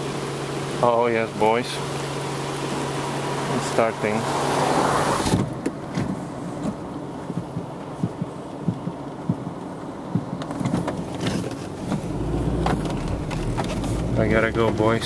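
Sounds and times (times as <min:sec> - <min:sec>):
raindrops tapping on car: 0:05.5 - 0:15.0.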